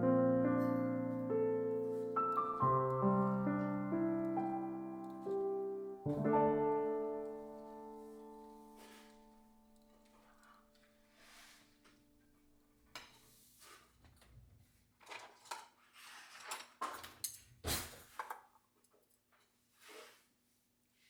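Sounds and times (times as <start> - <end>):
soft solo piano music: 0.0 - 9.9.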